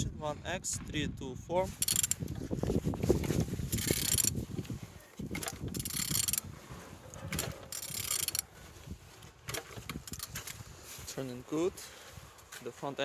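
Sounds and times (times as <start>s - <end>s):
engine turned over by hand: 1.8s - 10.6s.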